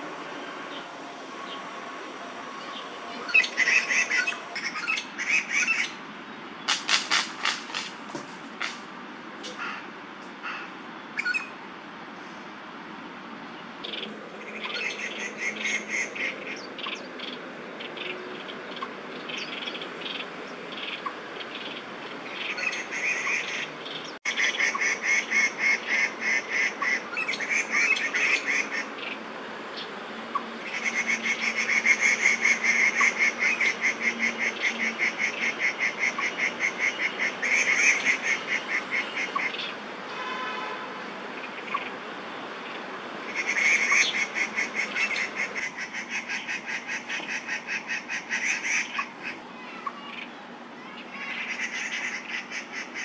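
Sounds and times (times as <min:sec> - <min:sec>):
squirrel alarm calls: 0:02.6 - 0:06.0, 0:06.6 - 0:08.8, 0:13.8 - 0:29.2, 0:29.8 - 0:39.8, 0:42.7 - 0:53.0.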